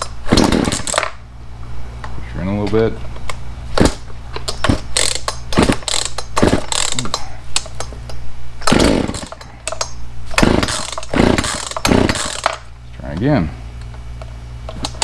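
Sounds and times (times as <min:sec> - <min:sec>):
chainsaw engine idling and surging: 0:00.0 - 0:01.2, 0:04.7 - 0:07.2, 0:08.6 - 0:13.5.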